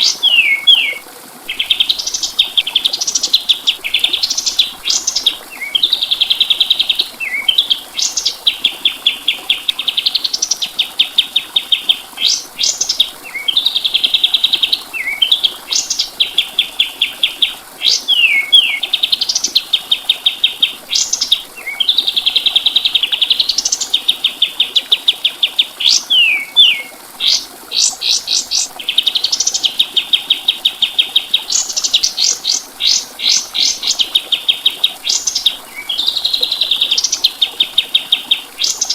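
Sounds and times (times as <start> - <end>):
songbird trilling and whistling: 0.0 - 1.0, 11.7 - 22.0, 23.1 - 29.7.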